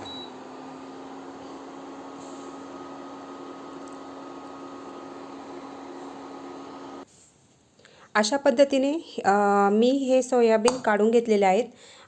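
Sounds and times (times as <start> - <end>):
electric stove humming: 0.0 - 7.1.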